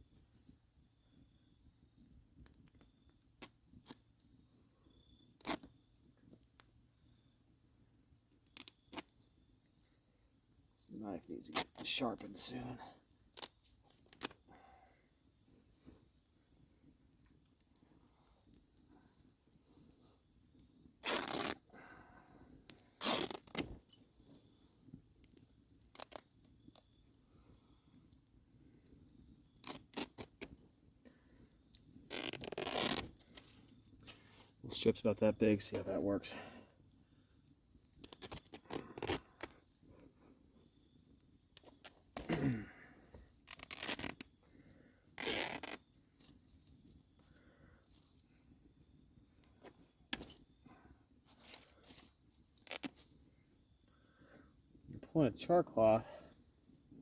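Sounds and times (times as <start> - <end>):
cloth tearing: 5.4 - 5.7, 21.0 - 21.6, 23.0 - 23.8, 29.6 - 30.3, 32.1 - 33.1, 38.1 - 39.5, 42.2 - 42.6, 43.5 - 44.2, 45.2 - 45.8, 52.6 - 53.0.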